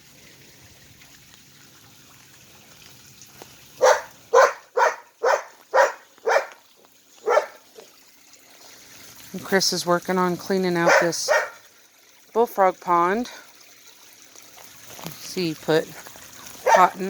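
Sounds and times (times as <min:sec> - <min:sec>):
dog barking: 0:03.8 - 0:06.6, 0:07.2 - 0:07.9, 0:10.8 - 0:11.6, 0:16.6 - 0:17.0.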